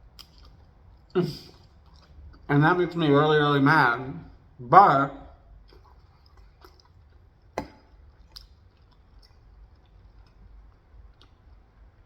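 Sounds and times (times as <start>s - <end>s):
person chewing food: 0.0s - 2.5s, 5.4s - 12.0s
wet mouth clicks: 5.6s - 11.7s.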